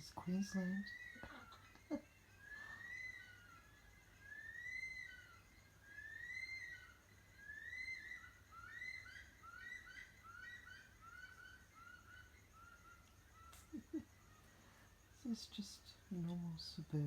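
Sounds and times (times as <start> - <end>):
bush stone-curlews wailing: 0.0 - 17.0.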